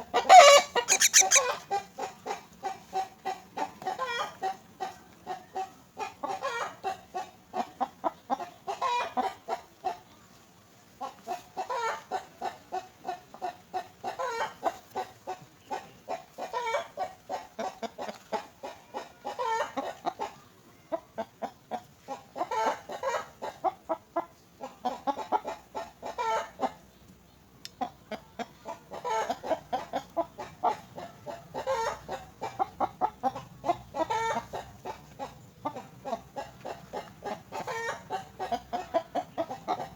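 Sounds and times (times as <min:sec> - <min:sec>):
young birds begging chirps: 0:00.3 - 0:01.5.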